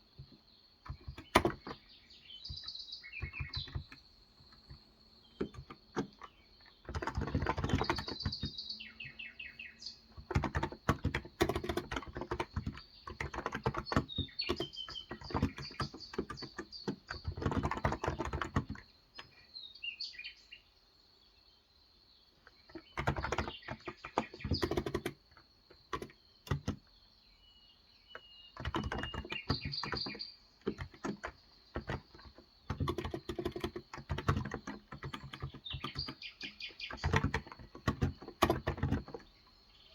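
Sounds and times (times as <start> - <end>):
birds chirping: 0.0 - 39.9
keyboard key clicks: 0.2 - 1.8, 2.4 - 8.6, 10.2 - 19.3, 22.7 - 26.8, 28.6 - 39.3.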